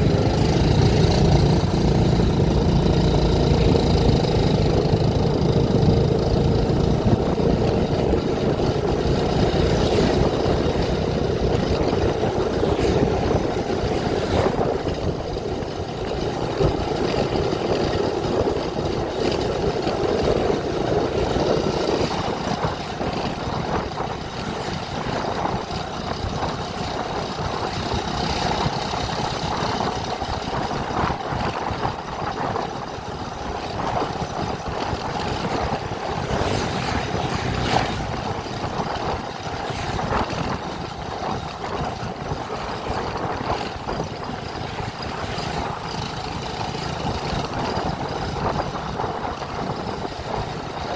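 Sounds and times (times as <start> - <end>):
vehicle engine running: 0.0 - 50.9.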